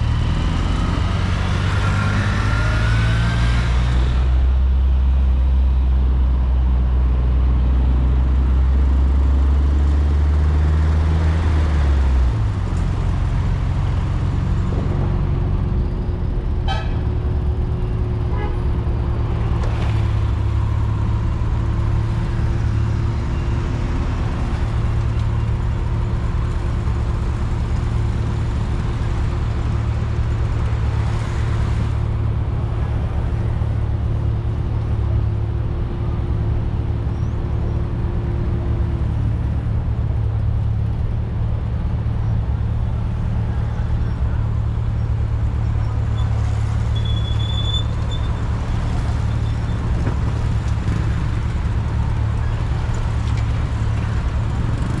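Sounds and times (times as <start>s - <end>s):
car engine drone: 0.0s - 55.0s.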